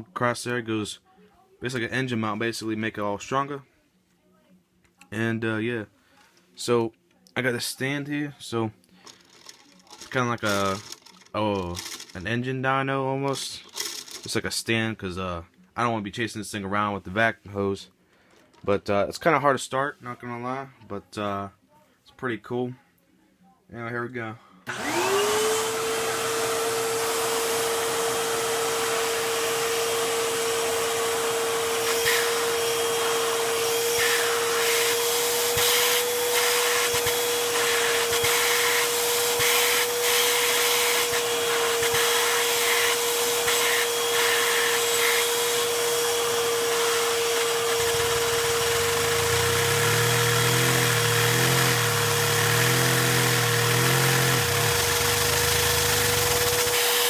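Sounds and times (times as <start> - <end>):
small engine high whine: 24.7 - 57.0.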